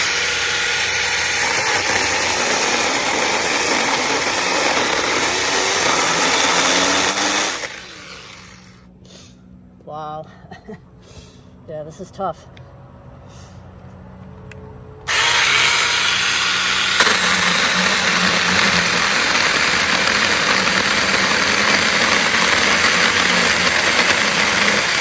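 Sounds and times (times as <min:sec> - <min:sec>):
mini chainsaw cutting branch: 0:00.0 - 0:08.8, 0:15.1 - 0:25.0.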